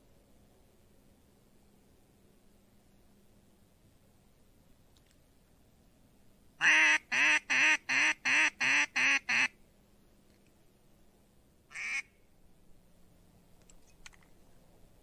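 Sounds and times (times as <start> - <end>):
duck call quacks: 6.6 - 9.6, 11.7 - 12.1.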